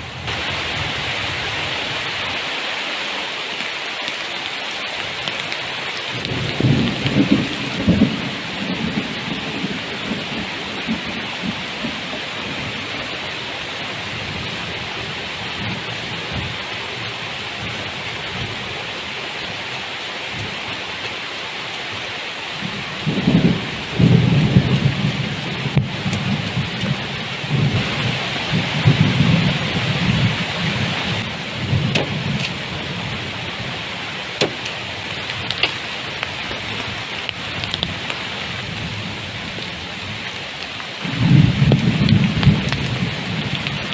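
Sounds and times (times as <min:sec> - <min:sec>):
heavy rain falling: 0:00.0 - 0:43.9
thunder rumbling: 0:06.0 - 0:18.8, 0:22.6 - 0:40.4, 0:41.0 - 0:43.9.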